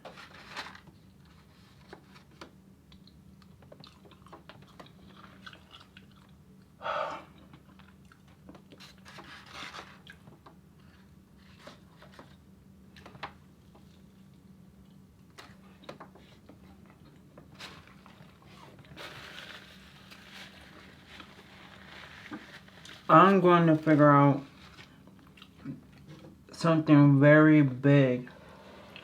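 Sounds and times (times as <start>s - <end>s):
person chewing and crunching food: 2.9s - 23.4s, 24.6s - 26.1s.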